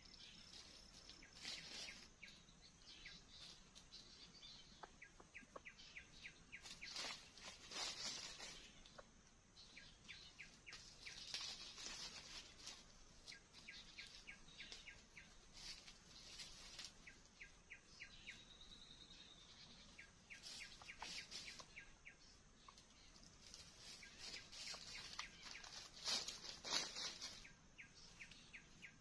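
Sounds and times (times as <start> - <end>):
bird chirps: 0.0 - 29.0.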